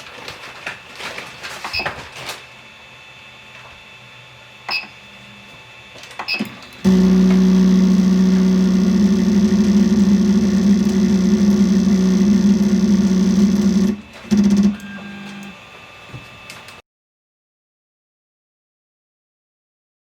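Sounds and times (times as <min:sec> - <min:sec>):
stepper motor grinding buzz: 0:06.9 - 0:15.5.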